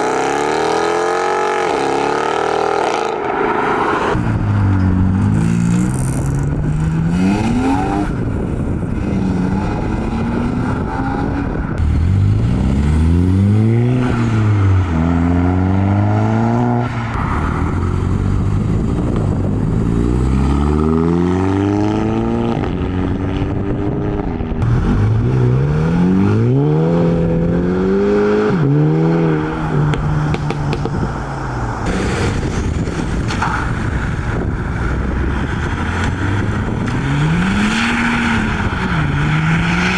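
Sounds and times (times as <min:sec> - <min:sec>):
car engines accelerating: 0:00.0 - 0:39.9
steady engine rumble: 0:04.2 - 0:15.0, 0:17.1 - 0:20.5, 0:24.6 - 0:39.6.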